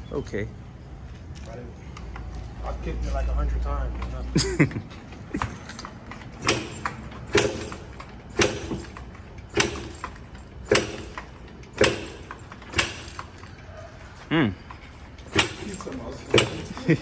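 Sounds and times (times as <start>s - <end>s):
motorcycle kick-start turnover: 5.1s - 13.7s, 15.2s - 17.0s.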